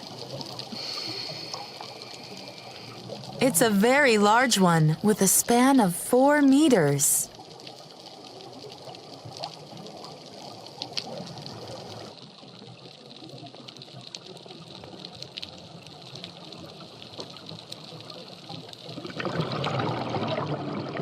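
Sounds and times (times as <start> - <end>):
crackling clicks: 0.0 - 3.4, 7.4 - 12.1
underwater hiss: 0.4 - 3.4
bubbling water rush: 18.8 - 21.0.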